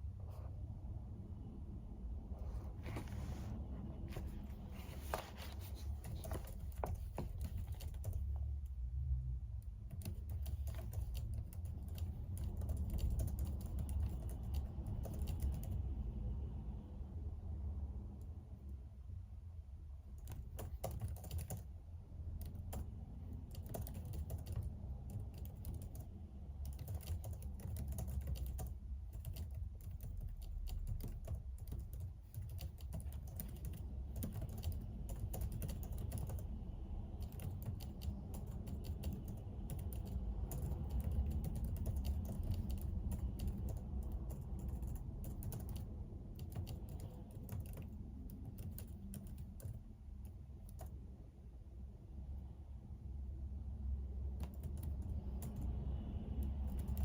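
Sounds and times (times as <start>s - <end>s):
computer keyboard typing: 4.2s - 8.8s, 9.7s - 16.0s, 20.2s - 51.0s, 54.3s - 55.8s, 56.4s - 57.0s.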